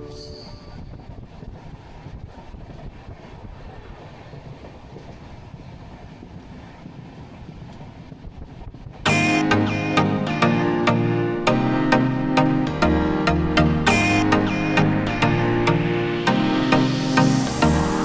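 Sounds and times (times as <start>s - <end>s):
background music: 9.1s - 18.0s.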